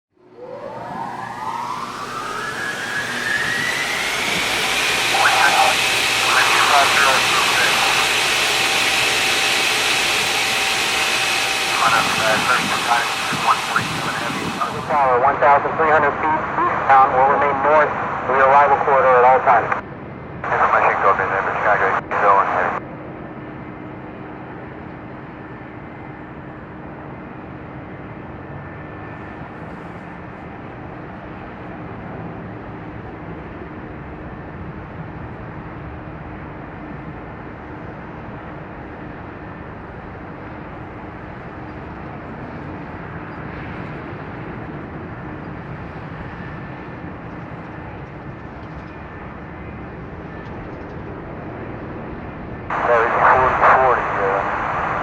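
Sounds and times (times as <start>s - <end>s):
jet airliners rumbling: 0.2s - 55.0s.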